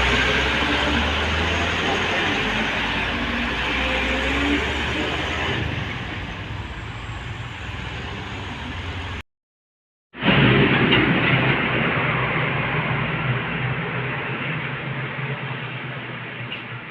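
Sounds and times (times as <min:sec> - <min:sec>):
heavy vehicle passing: 0:00.0 - 0:09.2.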